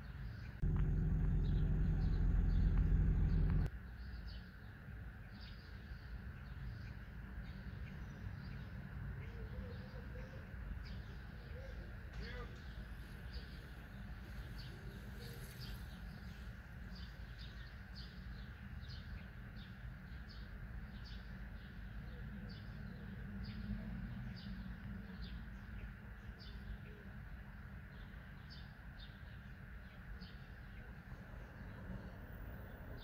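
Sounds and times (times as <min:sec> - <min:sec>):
small bird chirping: 0:00.4 - 0:03.7
city background rumble: 0:00.5 - 0:03.8, 0:20.6 - 0:33.0.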